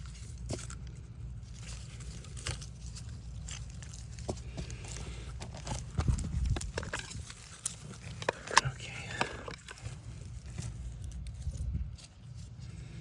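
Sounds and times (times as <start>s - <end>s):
tools and cable clicking: 5.4s - 10.0s.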